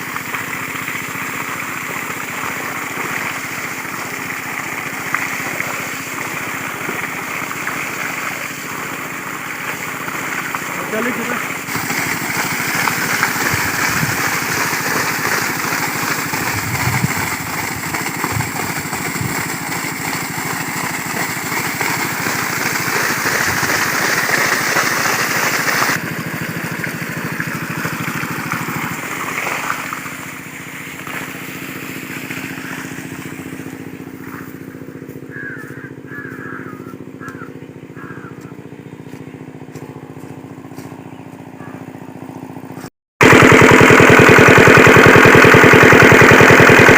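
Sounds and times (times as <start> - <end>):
diesel pump engine chugging: 0.0 - 46.9
hiss: 11.7 - 26.0.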